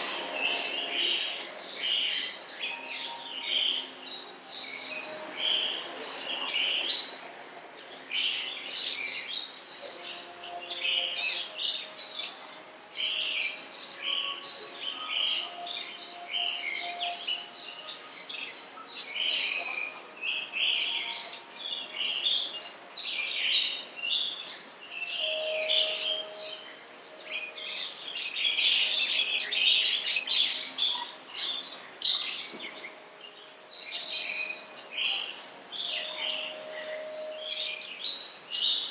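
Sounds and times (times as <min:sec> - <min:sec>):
small birds chirping: 0:07.8 - 0:38.9.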